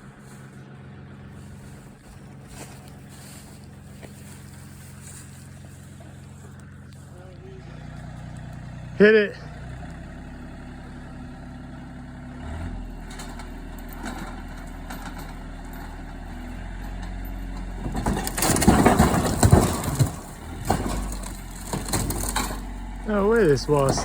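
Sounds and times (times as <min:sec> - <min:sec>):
backhoe engine revving: 0:00.0 - 0:24.0
bucket crunching and crashing: 0:16.9 - 0:24.0
small knocks: 0:16.9 - 0:24.0.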